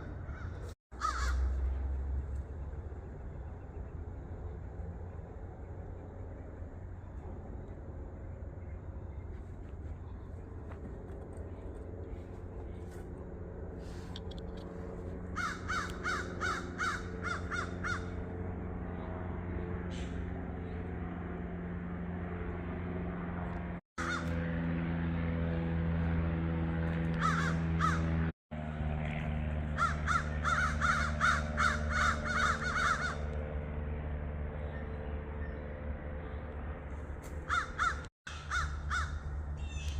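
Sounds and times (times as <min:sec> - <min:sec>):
crows cawing: 0:00.0 - 0:01.6, 0:15.3 - 0:18.2, 0:24.0 - 0:24.4, 0:27.1 - 0:28.2, 0:29.7 - 0:33.4, 0:37.4 - 0:39.9
steady low hum: 0:00.0 - 0:39.9.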